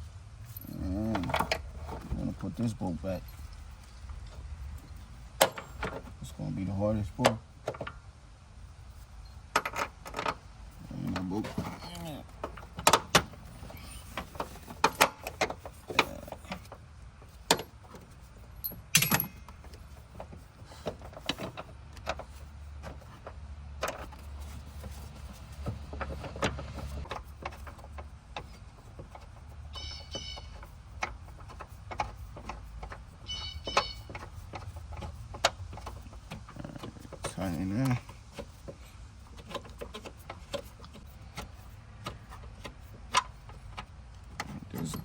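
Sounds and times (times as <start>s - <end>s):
metal tools clinking: 0.4s - 5.9s, 18.5s - 19.8s, 44.5s - 45.0s.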